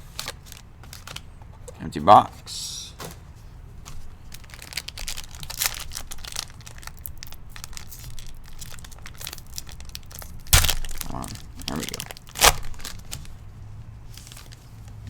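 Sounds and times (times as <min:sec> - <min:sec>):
card pack wrapper crinkling and tearing: 0:00.0 - 0:01.3, 0:04.0 - 0:13.4, 0:14.1 - 0:14.7.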